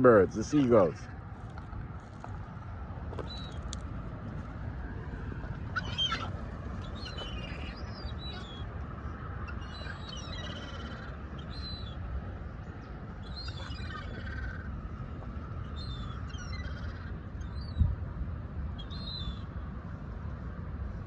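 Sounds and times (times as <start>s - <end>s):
steady low rumble: 0.0s - 21.0s
seagulls calling: 3.1s - 3.8s, 5.0s - 18.0s, 18.7s - 19.6s.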